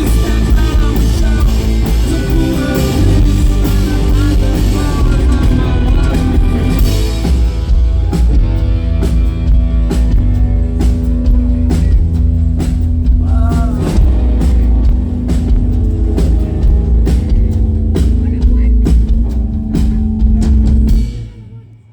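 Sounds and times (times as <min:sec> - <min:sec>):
person singing: 0:00.0 - 0:07.5, 0:13.2 - 0:14.4
rock band playing: 0:00.0 - 0:21.7
drum kit steady beat: 0:00.0 - 0:21.9.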